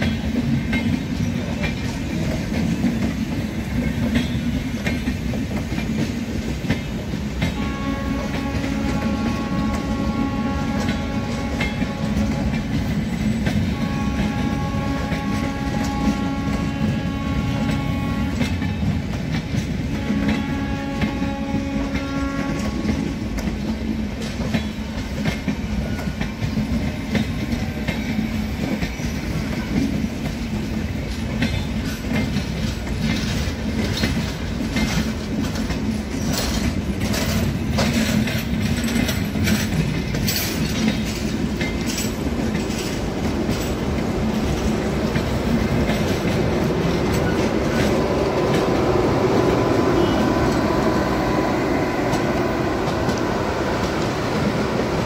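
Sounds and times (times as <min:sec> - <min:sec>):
train coaches rumbling past: 0:00.0 - 0:55.0
wheels clattering over rail joints: 0:00.0 - 0:55.0
multi-tone train horn: 0:07.3 - 0:24.5, 0:43.5 - 0:55.0.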